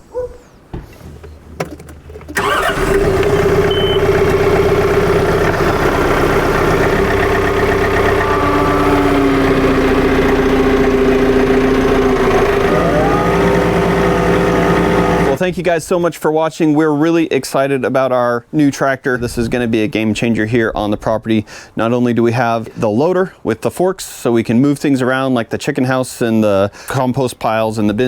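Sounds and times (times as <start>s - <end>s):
engine starting and running: 1.2s - 15.5s.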